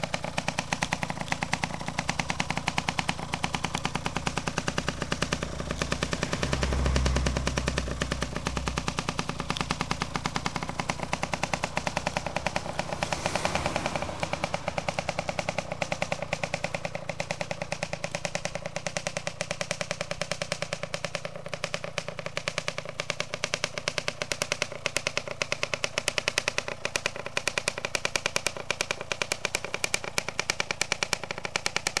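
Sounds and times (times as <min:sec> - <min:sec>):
two-stroke motorcycle engine running: 0:00.0 - 0:32.0.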